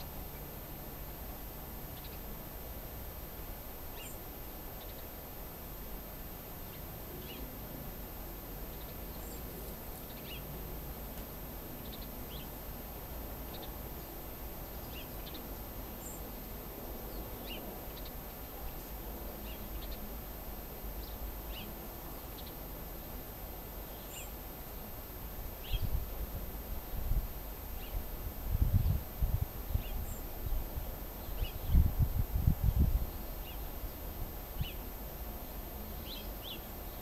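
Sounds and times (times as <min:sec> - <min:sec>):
low outdoor background rumble: 0:00.0 - 0:37.0
small birds chirping: 0:01.9 - 0:02.3, 0:03.9 - 0:05.1, 0:06.6 - 0:07.5, 0:08.6 - 0:10.5, 0:11.8 - 0:12.6, 0:13.4 - 0:13.8, 0:14.8 - 0:16.4, 0:17.1 - 0:20.1, 0:21.0 - 0:22.6, 0:23.8 - 0:24.4, 0:25.6 - 0:25.9, 0:29.6 - 0:30.6, 0:31.2 - 0:31.9, 0:34.6 - 0:34.9, 0:36.0 - 0:37.0.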